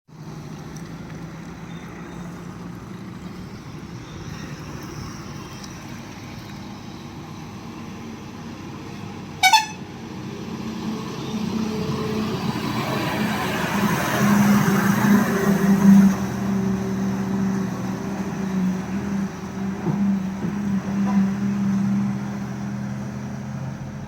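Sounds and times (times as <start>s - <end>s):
truck horn honk: 9.4s - 9.9s.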